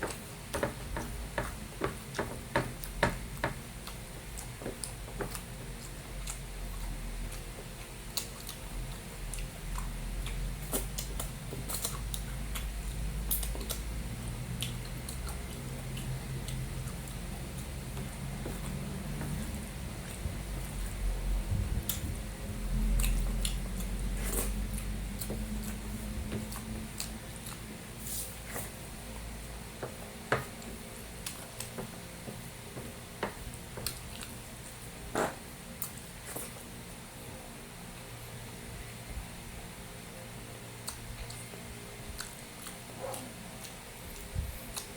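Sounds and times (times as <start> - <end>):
wet chewing: 3.8 - 21.0, 21.8 - 27.7, 33.5 - 34.4
wet chewing and mouth smacks: 42.1 - 44.9.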